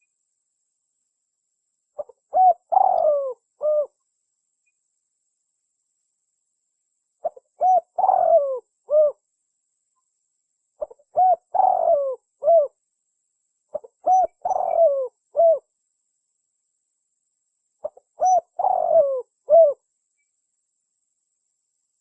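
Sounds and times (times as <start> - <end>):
dove cooing: 2.0 - 4.0, 7.2 - 9.2, 10.8 - 12.7, 13.7 - 15.7, 17.8 - 19.8.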